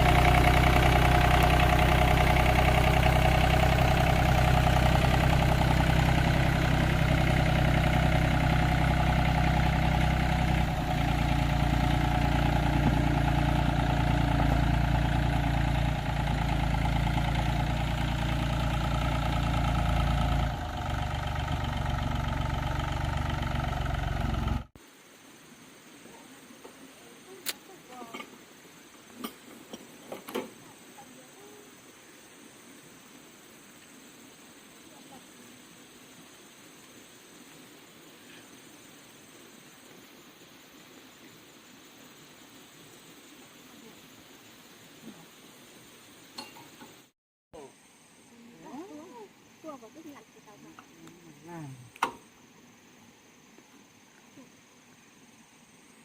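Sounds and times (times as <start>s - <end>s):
tractor engine running: 0.0s - 24.8s.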